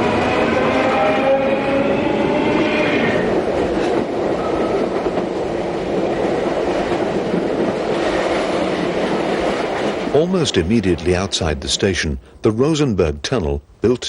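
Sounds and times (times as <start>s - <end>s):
train wheels rumbling on rails: 0.0s - 13.4s.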